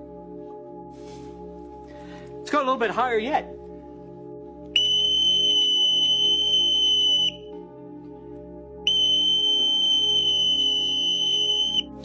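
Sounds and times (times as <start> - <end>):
soft background music: 0.0 - 12.0
person whistling high note: 4.8 - 7.4, 8.9 - 11.9.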